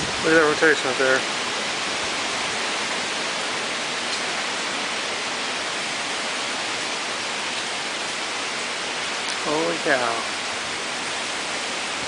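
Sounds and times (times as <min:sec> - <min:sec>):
wind rushing: 0:00.0 - 0:00.3
rain: 0:00.0 - 0:12.0.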